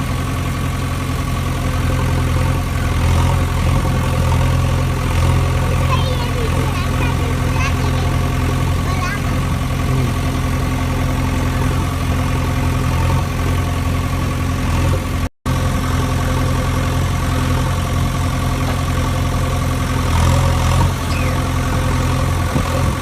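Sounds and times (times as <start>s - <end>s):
engine idling: 0.0s - 23.0s.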